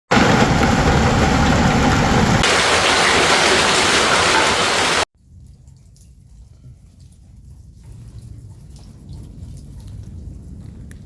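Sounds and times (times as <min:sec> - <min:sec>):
deep rumble: 0:00.1 - 0:02.8, 0:07.4 - 0:11.0
heavy rain downpour: 0:00.1 - 0:05.1.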